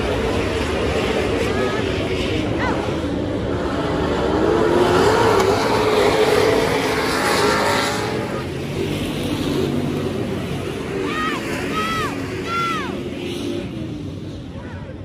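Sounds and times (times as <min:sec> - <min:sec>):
race car engines running: 0:00.0 - 0:15.0.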